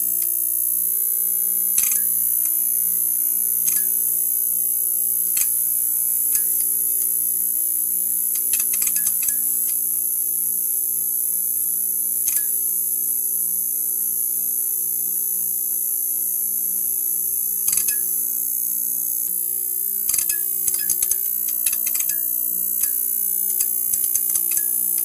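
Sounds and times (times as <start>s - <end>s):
neon sign buzzing: 17.6s - 25.0s
crackling clicks: 20.1s - 22.2s, 22.8s - 25.0s.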